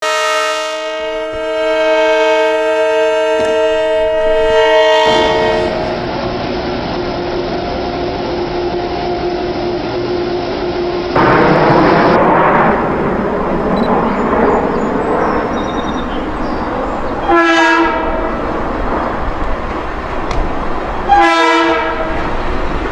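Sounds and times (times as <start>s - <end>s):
train horn blast: 0.0s - 6.1s, 13.3s - 22.6s
train wheel and rail noise: 0.0s - 22.9s.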